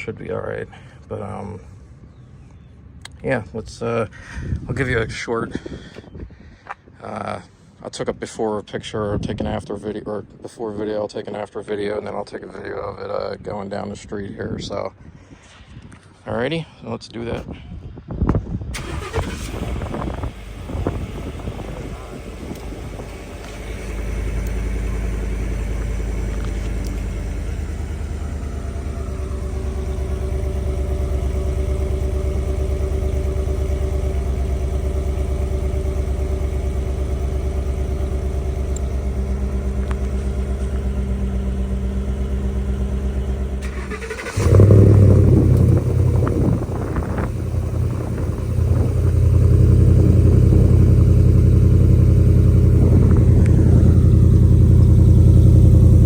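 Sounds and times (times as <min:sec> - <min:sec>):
truck engine exhaust note: 0:18.8 - 0:56.0.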